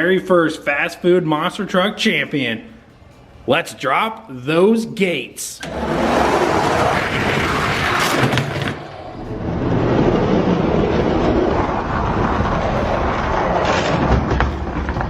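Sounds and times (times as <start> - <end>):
toy trucks rolling on plastic track: 5.6 - 9.0, 9.6 - 15.0.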